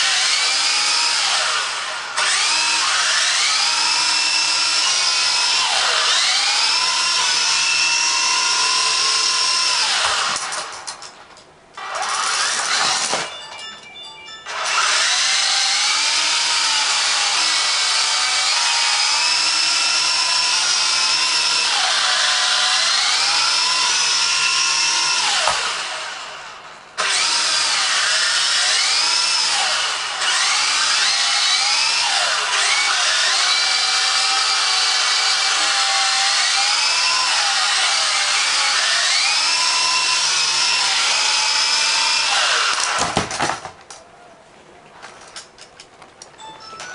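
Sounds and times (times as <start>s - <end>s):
toy helicopter motors whining: 11.8s - 13.3s, 14.4s - 26.3s, 27.0s - 43.0s.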